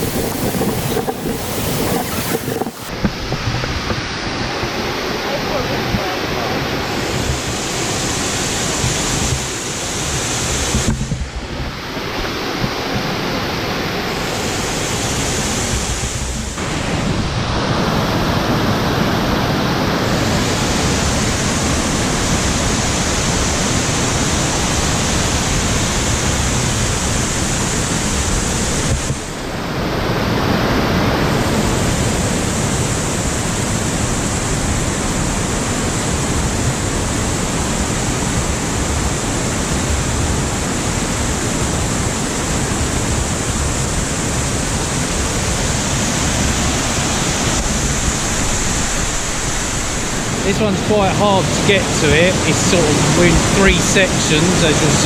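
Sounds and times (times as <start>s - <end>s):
waterfall rushing: 0.0s - 2.9s, 43.8s - 55.0s.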